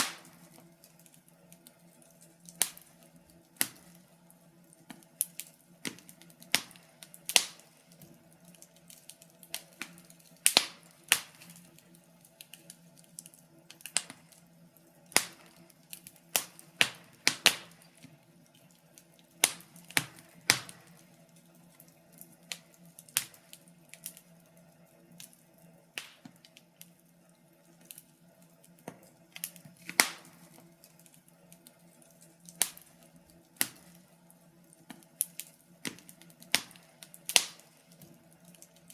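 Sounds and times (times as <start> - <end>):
faint steady hum: 0.0 - 38.9
wood fire crackling: 0.0 - 38.9.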